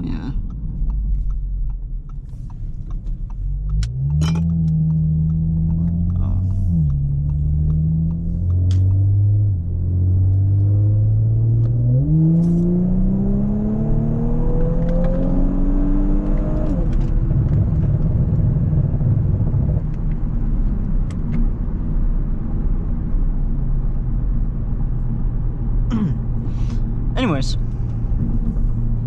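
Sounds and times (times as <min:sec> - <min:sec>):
car engine revving: 0:00.0 - 0:21.0
road rumble: 0:00.0 - 0:29.0.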